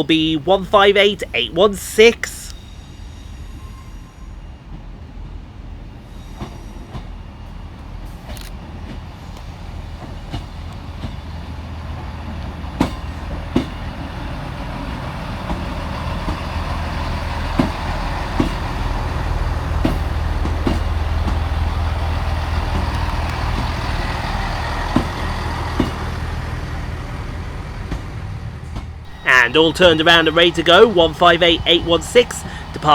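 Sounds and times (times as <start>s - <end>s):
train engine hum: 0.0s - 32.9s
wheels clicking on track: 12.3s - 27.1s, 29.1s - 32.9s.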